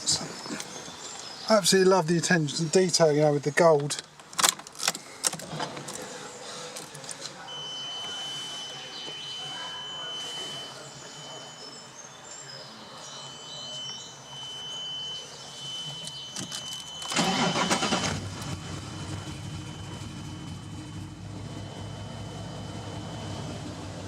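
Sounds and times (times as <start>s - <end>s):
car engine cranking clicks: 3.7s - 6.1s, 16.0s - 18.9s
thin steady high tone: 7.4s - 17.1s
car engine starting and idling: 16.1s - 24.0s.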